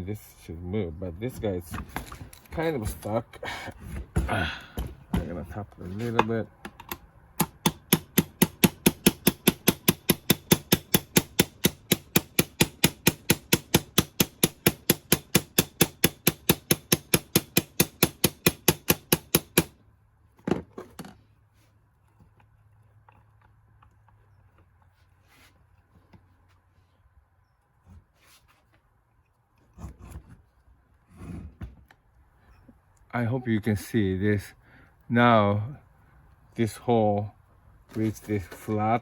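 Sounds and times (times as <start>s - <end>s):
rapid tapping on metal rod: 7.4s - 19.7s.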